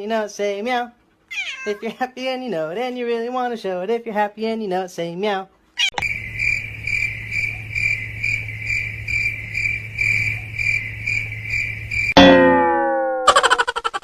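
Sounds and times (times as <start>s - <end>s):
crickets chirping: 6.0s - 12.2s, 13.3s - 14.0s
loud sudden downward-sliding sound: 12.2s - 13.7s.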